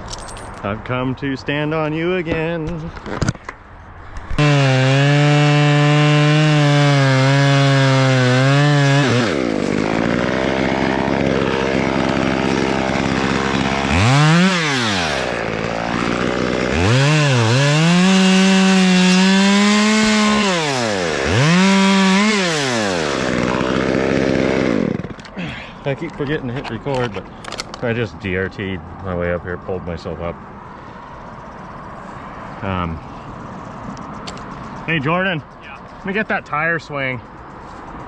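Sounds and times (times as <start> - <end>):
chainsaw revving: 4.3 - 25.5.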